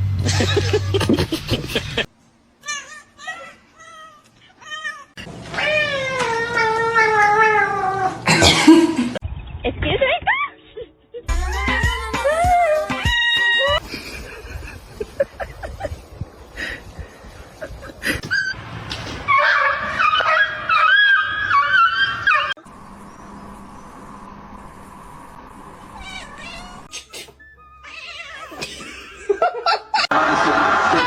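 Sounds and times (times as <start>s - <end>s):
cat yowling: 2.6s - 8.2s, 11.6s - 13.8s, 26.0s - 26.9s, 27.8s - 28.6s.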